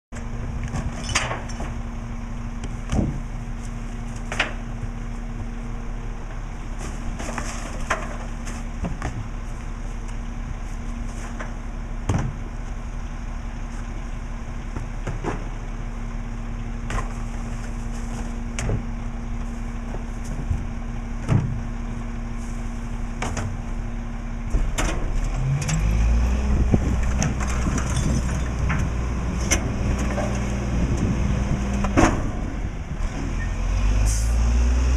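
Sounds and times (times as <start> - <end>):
garbage truck diesel engine idling: 1.4 - 25.1.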